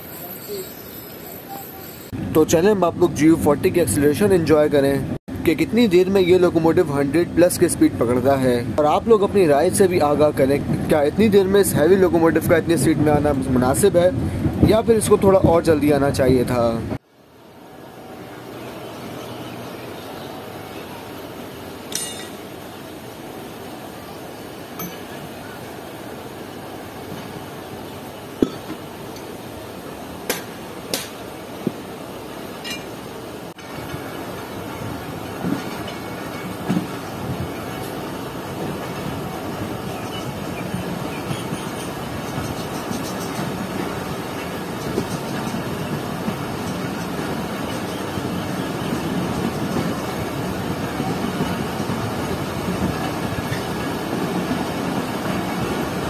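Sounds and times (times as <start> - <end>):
low train rumble: 0.0 - 56.0
sharp metallic clanks: 21.9 - 22.5, 24.8 - 25.2, 32.6 - 33.0.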